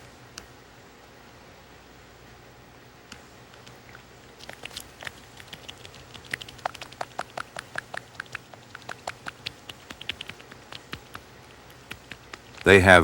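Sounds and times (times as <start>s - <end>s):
cat lapping milk: 4.4s - 12.7s.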